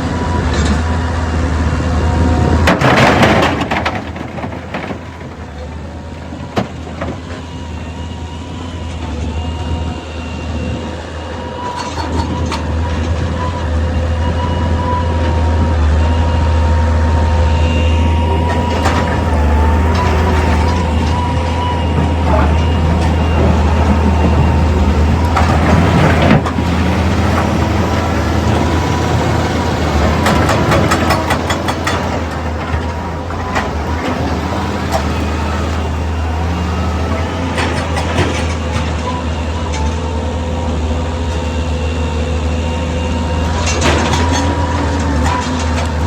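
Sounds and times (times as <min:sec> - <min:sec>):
excavator diesel engine running: 0:00.0 - 0:46.0
metal clanks and knocks: 0:30.0 - 0:35.2.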